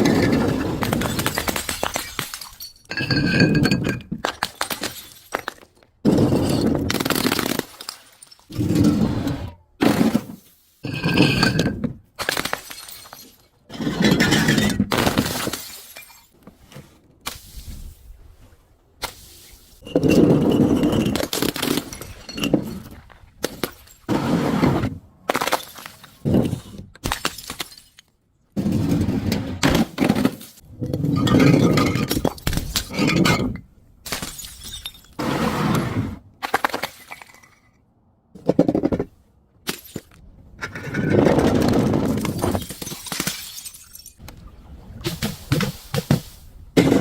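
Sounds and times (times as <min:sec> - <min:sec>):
glass bottle shattering: 0:01.0 - 0:08.6, 0:11.0 - 0:13.5, 0:14.1 - 0:16.4, 0:27.1 - 0:28.1, 0:31.2 - 0:35.2, 0:42.2 - 0:44.2.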